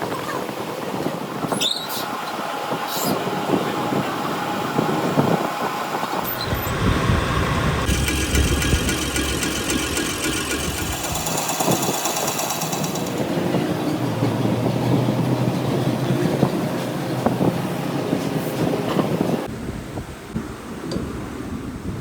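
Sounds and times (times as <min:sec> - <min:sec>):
workshop machinery running: 0:02.0 - 0:15.0
deep rumble: 0:06.2 - 0:11.6
high-pitched rattle: 0:06.2 - 0:13.2.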